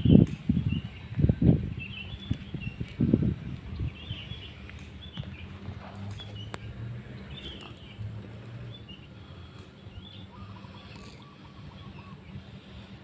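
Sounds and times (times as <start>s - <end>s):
birds chirping: 0.0s - 13.0s
low steady hum: 0.0s - 13.0s
bird trilling call: 8.7s - 13.0s.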